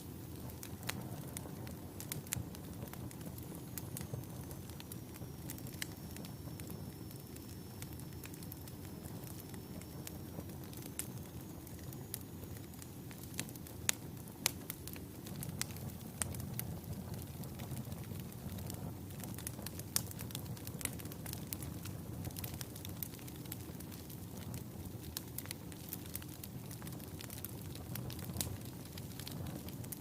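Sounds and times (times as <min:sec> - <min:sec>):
wood fire crackling: 0:00.0 - 0:30.0
faint high whistle: 0:03.5 - 0:13.4.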